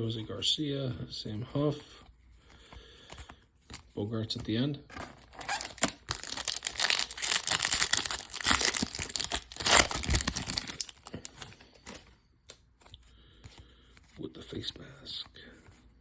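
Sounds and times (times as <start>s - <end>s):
plastic wrapper crinkling and tearing: 5.1s - 12.0s.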